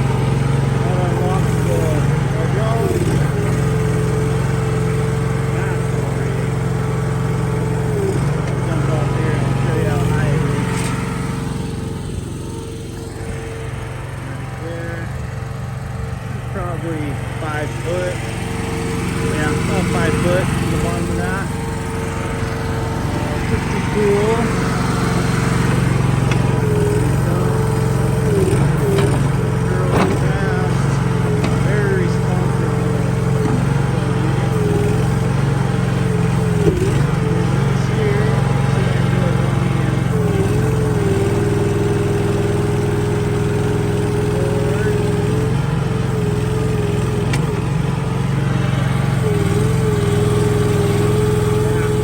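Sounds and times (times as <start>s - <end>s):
skid steer engine running: 0.0s - 52.0s
steady whine: 7.8s - 15.2s, 15.8s - 40.6s.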